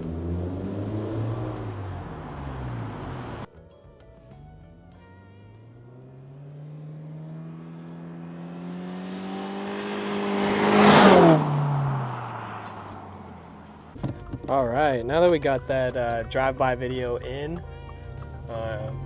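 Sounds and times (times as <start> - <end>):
car driving past: 0.0 - 3.5, 6.0 - 14.7.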